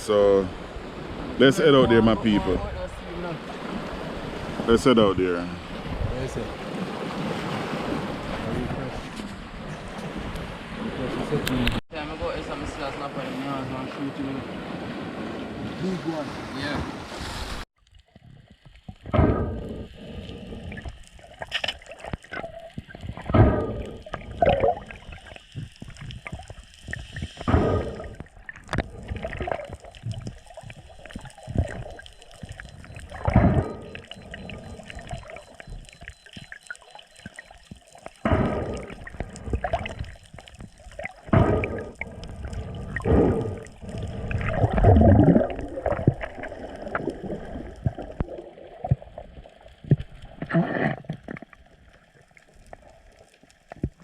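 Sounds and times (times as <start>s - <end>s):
underwater water gurgling: 17.8s - 54.0s.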